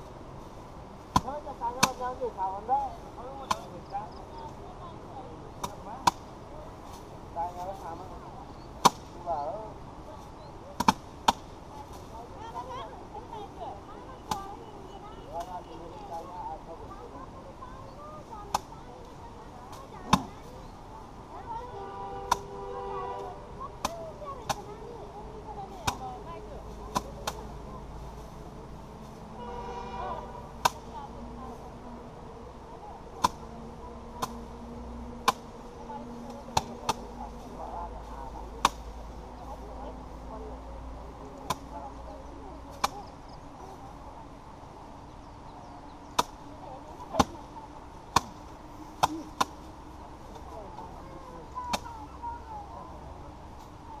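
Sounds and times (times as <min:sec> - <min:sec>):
faint voices: 0:00.0 - 0:54.0
rice sheaves beaten on threshing surface: 0:01.0 - 0:02.2, 0:25.6 - 0:29.2, 0:30.5 - 0:31.0, 0:33.1 - 0:34.5, 0:35.2 - 0:35.6, 0:36.2 - 0:39.6.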